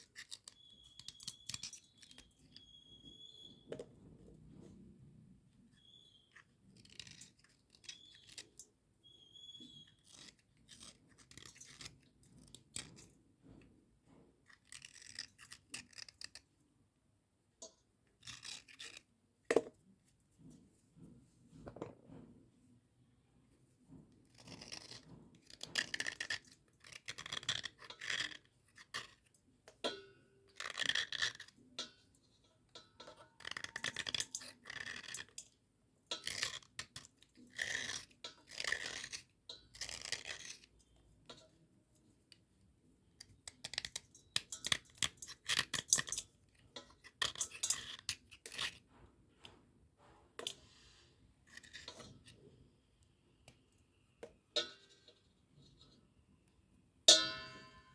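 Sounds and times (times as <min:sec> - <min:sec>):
scratchy rubbing and scraping: 0:05.8 - 0:16.4, 0:18.2 - 0:19.1, 0:23.8 - 0:29.3, 0:36.1 - 0:41.4, 0:47.2 - 0:52.6.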